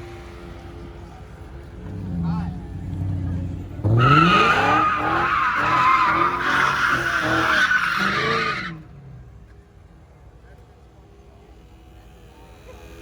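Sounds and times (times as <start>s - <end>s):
car engine revving: 0.0s - 9.6s
loud tyre squeal: 2.8s - 8.9s.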